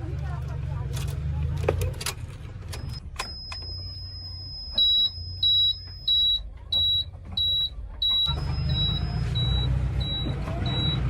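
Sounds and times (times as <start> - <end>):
diesel engine rumbling: 0.0 - 11.0
reversing alarm beeping: 3.2 - 11.0.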